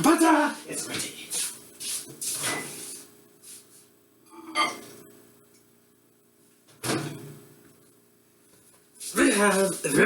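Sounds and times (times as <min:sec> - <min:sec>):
dish or glass clink: 0:04.4 - 0:04.8.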